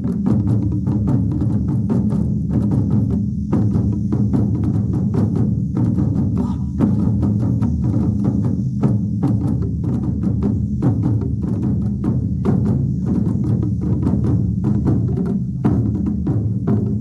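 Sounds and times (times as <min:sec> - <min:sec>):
large drums booming: 0:00.0 - 0:17.0.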